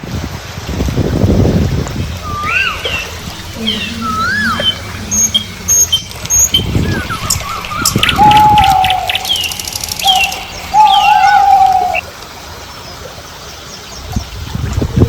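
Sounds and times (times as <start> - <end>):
engine hum: 1.4 - 12.0
birds chirping and whistling: 2.0 - 12.0.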